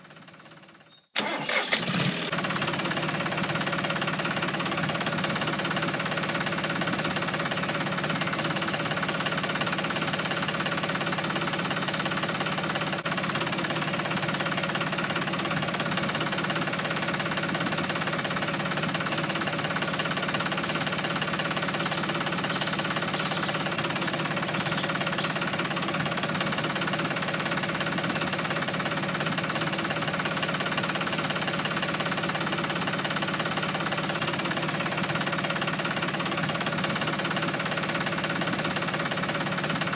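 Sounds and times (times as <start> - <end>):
tractor engine chugging: 0.0 - 39.9.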